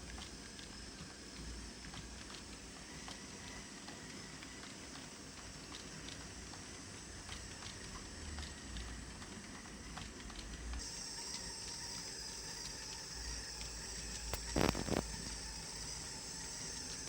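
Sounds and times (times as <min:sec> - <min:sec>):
steady high whir: 0:10.8 - 0:17.0.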